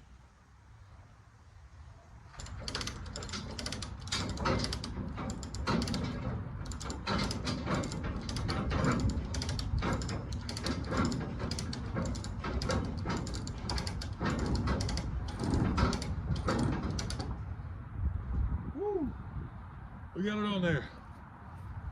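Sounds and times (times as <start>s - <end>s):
rapid mechanical clicks and knocks: 2.3s - 17.5s.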